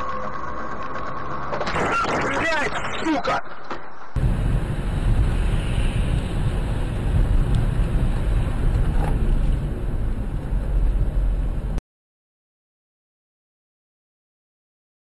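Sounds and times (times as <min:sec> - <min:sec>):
car road and wind noise: 0:03.4 - 0:11.8.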